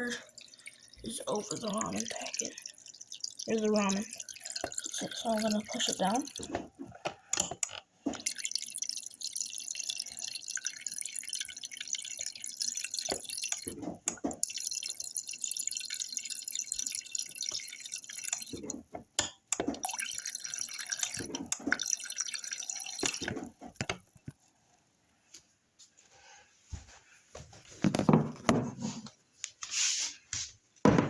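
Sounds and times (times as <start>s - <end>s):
tap water splashing into bowl: 0.0s - 24.4s.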